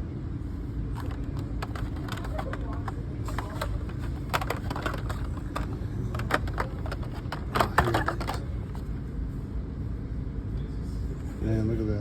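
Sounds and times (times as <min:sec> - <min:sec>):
steady low hum: 0:00.0 - 0:12.0
plastic toy packages clicking: 0:00.9 - 0:08.8.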